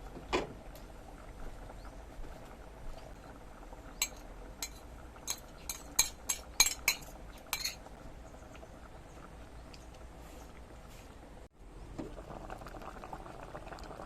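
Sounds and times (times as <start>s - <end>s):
utensils clinking on cookware: 4.0s - 7.9s.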